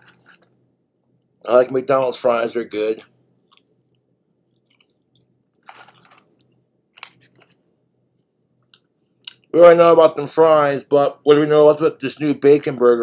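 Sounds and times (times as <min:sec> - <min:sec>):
man chewing fries: 0:03.4 - 0:07.6.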